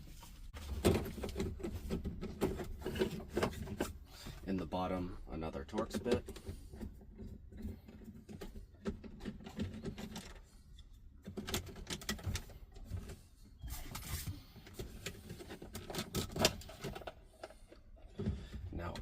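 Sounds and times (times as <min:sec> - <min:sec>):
clicks and rattles of plastic trim: 0:11.2 - 0:13.1.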